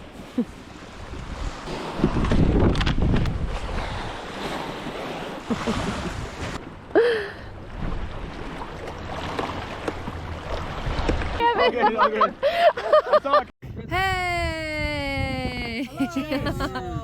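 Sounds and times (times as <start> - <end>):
waves washing around boat: 0.0 - 12.9
wind buffeting microphone: 0.9 - 6.6, 13.6 - 17.0.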